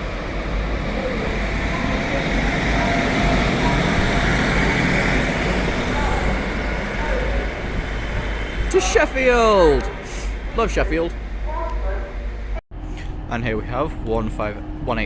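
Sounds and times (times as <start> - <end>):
diesel train engine rumbling: 0.0 - 15.0.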